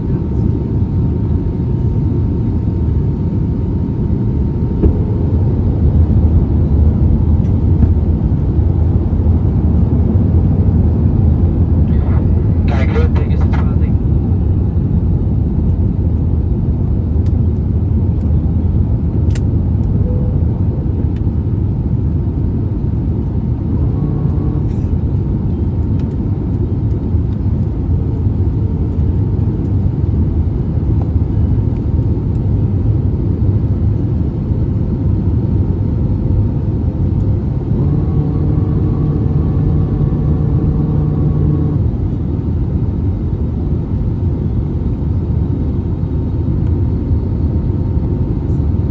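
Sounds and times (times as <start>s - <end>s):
airplane cabin engine rumble: 0.0s - 48.9s
multi-tone hum: 1.7s - 8.5s, 11.6s - 15.5s, 19.8s - 21.7s, 22.7s - 27.4s, 36.2s - 42.7s.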